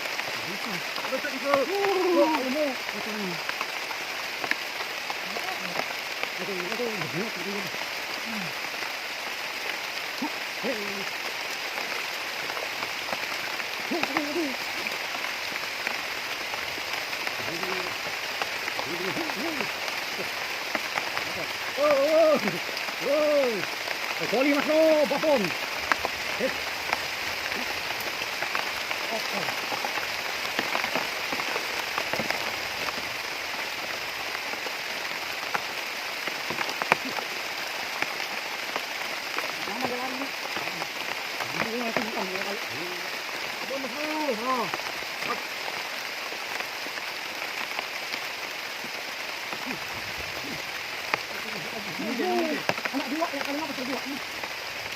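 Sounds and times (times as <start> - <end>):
steady rain hiss: 0.0 - 54.9
low wavering hoot calls: 18.8 - 23.7.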